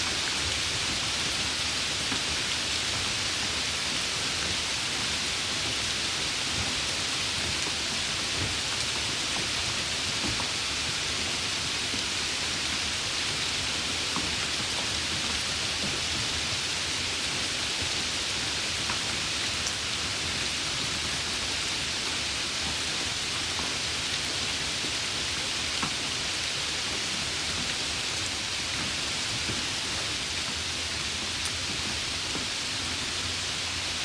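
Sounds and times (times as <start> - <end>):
rain hissing: 0.0 - 34.0.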